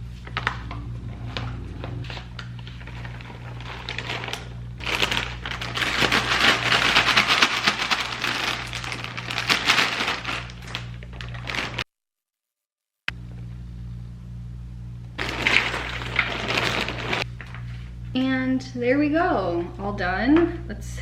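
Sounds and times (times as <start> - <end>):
dry cereal rattling while mixed: 2.1 - 11.8, 15.2 - 17.3.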